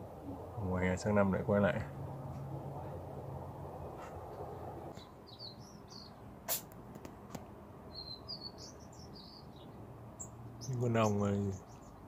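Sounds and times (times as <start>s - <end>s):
small bird twittering: 4.9s - 6.6s, 7.9s - 12.0s.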